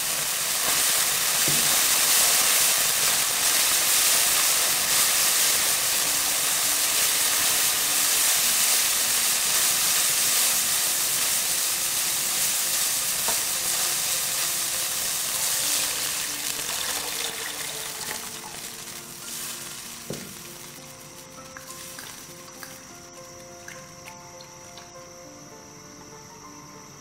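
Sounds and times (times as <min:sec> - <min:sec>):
meat sizzling in a pan: 0:00.0 - 0:25.0.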